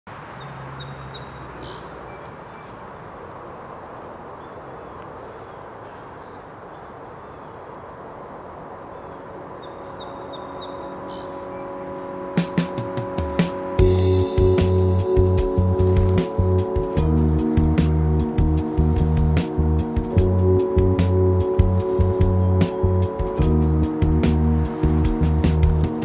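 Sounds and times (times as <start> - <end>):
small birds chirping: 0.3 - 26.0
sustained musical tone: 9.1 - 26.0.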